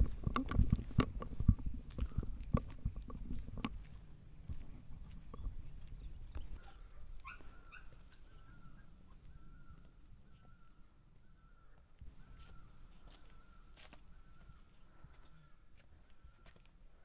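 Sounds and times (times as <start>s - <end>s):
low outdoor rumble: 0.0s - 11.0s
bird chirping: 5.1s - 15.8s.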